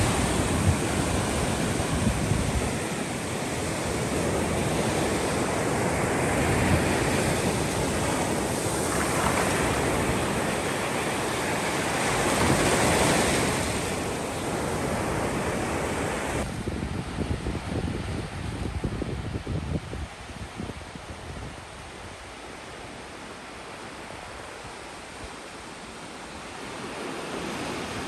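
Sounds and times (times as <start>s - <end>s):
ocean surf washing in: 0.0s - 16.5s
wind buffeting microphone: 0.0s - 22.2s.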